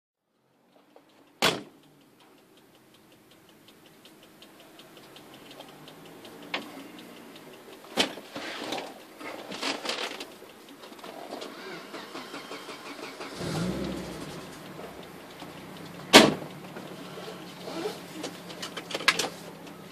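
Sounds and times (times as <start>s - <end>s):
fast faint ticking: 0.3s - 19.9s
sharp clicks: 0.4s - 19.9s
rough uneven engine noise: 11.2s - 19.9s
rising hum: 13.3s - 18.6s
sharp thump: 16.1s - 16.5s.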